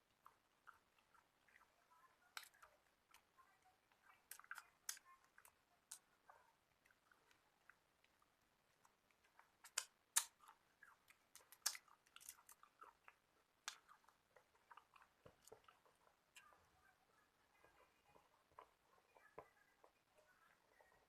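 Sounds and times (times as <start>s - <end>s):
person chewing crunchy food: 0.0s - 16.7s.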